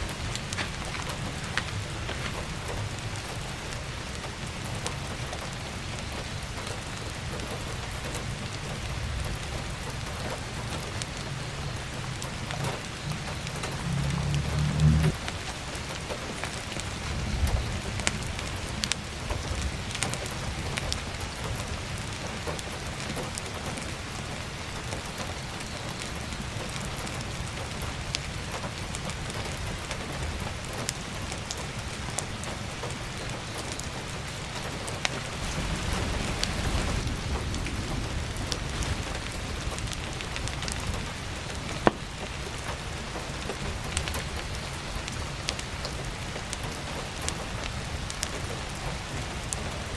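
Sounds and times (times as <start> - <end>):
firewood crackling and popping: 0.0 - 49.9
heavy rain falling: 0.0 - 49.9
low rumble: 11.6 - 15.3, 35.2 - 41.8.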